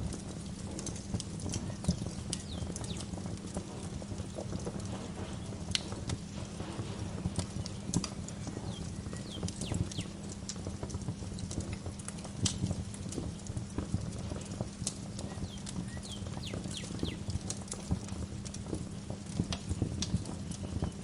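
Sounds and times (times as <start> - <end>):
wood fire crackling: 0.3 - 20.1
birds chirping: 1.5 - 5.6, 7.8 - 10.2, 15.2 - 18.4.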